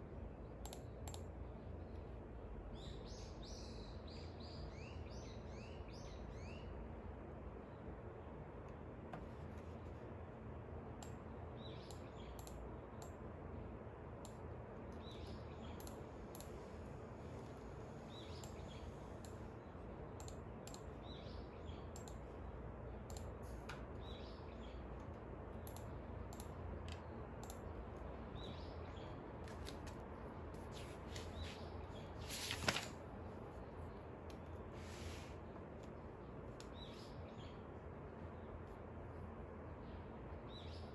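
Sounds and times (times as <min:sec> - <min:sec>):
light clicks: 0:00.6 - 0:01.3, 0:11.8 - 0:13.2, 0:14.2 - 0:16.6, 0:20.2 - 0:20.9, 0:21.9 - 0:22.2, 0:23.1 - 0:23.9, 0:25.0 - 0:27.6.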